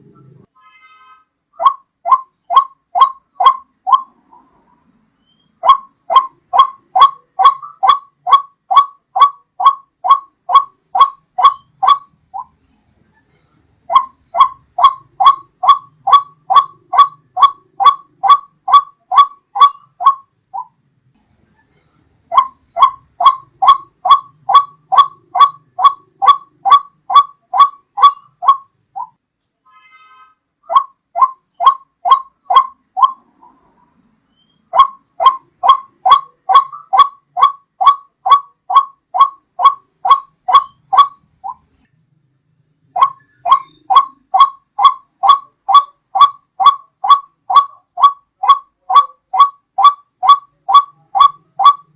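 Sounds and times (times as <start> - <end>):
waterhen calling: 1.6 - 4.6, 5.2 - 12.7, 13.9 - 20.7, 22.3 - 29.2, 30.7 - 33.7, 34.4 - 41.8, 42.9 - 51.9.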